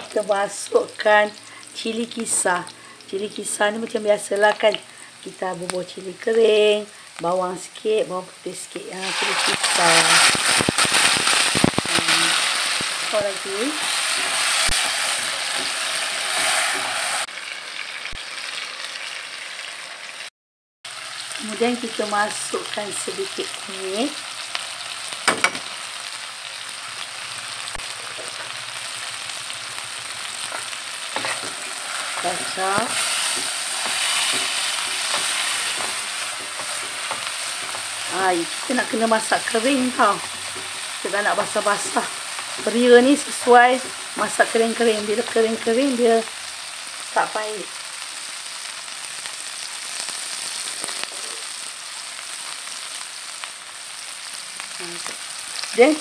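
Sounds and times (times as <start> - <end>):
paste sizzling in oil: 8.4 - 20.3, 20.9 - 56.0
metal spoon knocking pan: 25.2 - 25.7.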